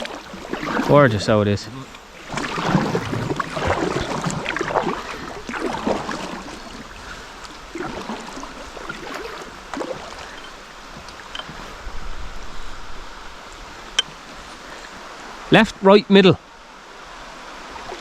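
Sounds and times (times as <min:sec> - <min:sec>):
water dripping: 0:00.0 - 0:11.8, 0:13.1 - 0:15.0
paddle splashing in water: 0:00.0 - 0:15.6.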